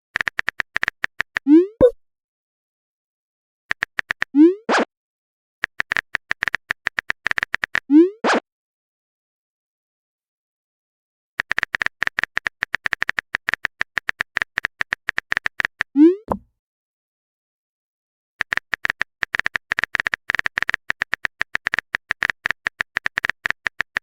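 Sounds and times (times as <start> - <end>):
typing clicks: 0.2 - 1.4, 5.6 - 7.8, 11.4 - 16.4, 18.4 - 24.0.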